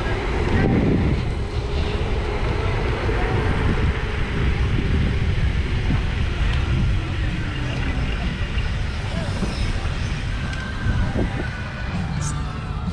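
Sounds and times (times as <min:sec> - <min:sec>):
wind buffeting microphone: 0:00.0 - 0:12.2.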